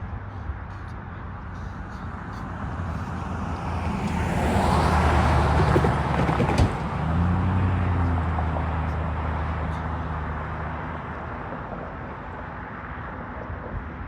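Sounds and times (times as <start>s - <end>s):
diesel train engine drone: 0.0s - 14.0s
train wheel and rail noise: 4.9s - 7.2s.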